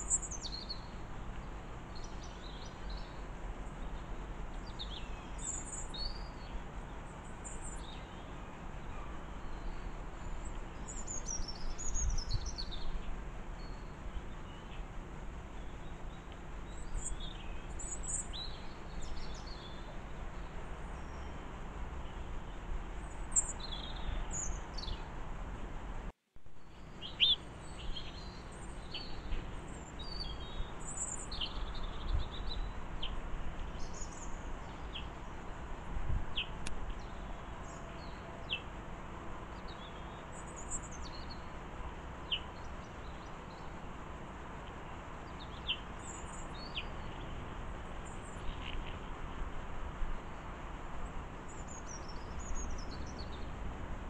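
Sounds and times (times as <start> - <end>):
small birds chirping and twittering: 0.0 - 25.2, 26.6 - 54.0
low steady background noise: 0.0 - 54.0.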